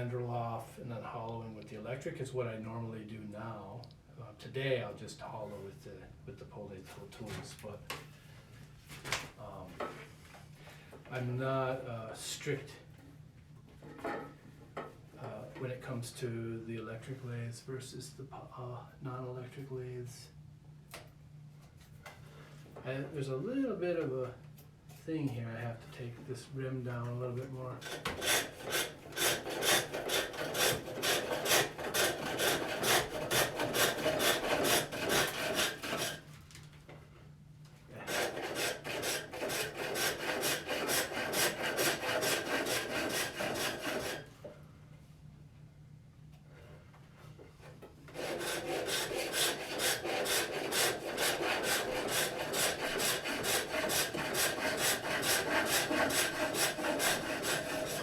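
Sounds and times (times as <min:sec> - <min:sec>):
lathe tool scraping wood: 0:27.8 - 0:36.2, 0:38.0 - 0:44.3, 0:48.1 - 0:58.0.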